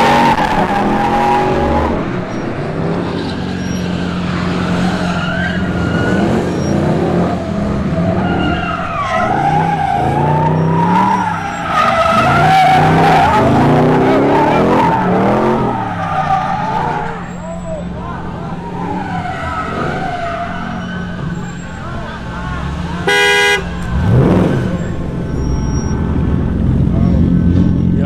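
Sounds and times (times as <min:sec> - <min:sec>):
car tires squealing: 0:00.0 - 0:26.1
car engine running hard: 0:00.0 - 0:28.0.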